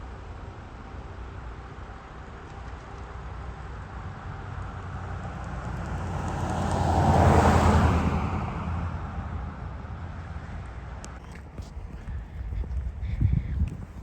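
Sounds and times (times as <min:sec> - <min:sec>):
vehicle passing by: 0:04.2 - 0:11.0.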